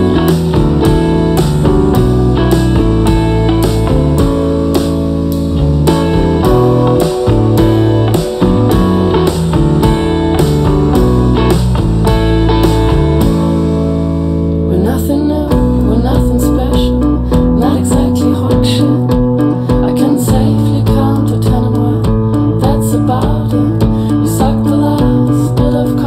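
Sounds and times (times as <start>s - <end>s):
drum beat: 0.0s - 13.9s
guitar sliding notes: 0.0s - 26.0s
rock band song: 0.0s - 26.0s.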